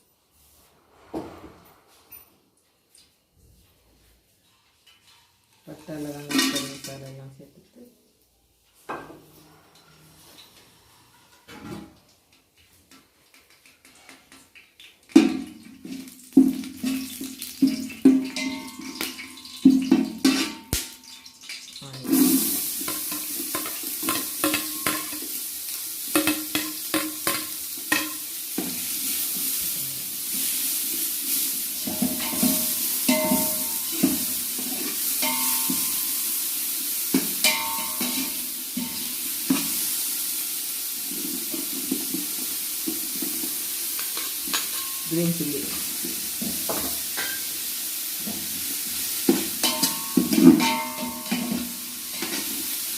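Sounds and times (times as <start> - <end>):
food sizzling in oil: 14.6 - 52.9.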